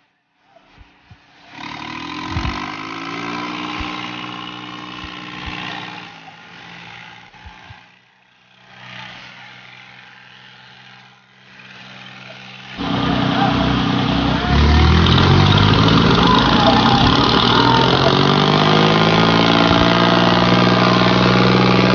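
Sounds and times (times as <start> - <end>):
tractor diesel engine revving: 1.5 - 6.1, 12.8 - 21.9.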